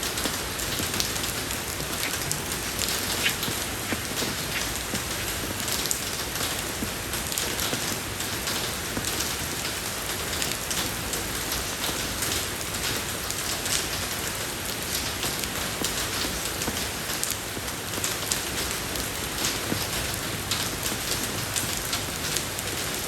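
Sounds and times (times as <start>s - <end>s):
rain on a road: 0.0s - 23.0s.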